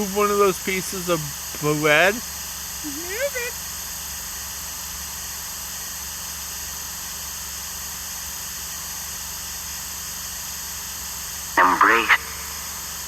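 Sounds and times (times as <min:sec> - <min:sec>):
electronic static hiss: 0:00.0 - 0:03.5.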